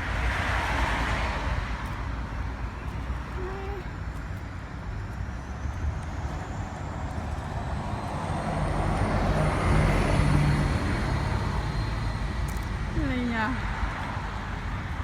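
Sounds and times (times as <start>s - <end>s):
passing vehicle rumble: 5.4s - 15.0s.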